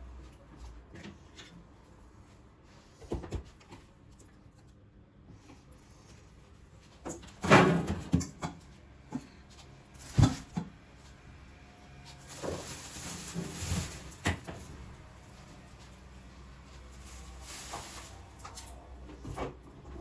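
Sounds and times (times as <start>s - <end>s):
household items handled and set down: 10.0s - 10.7s, 12.3s - 14.6s.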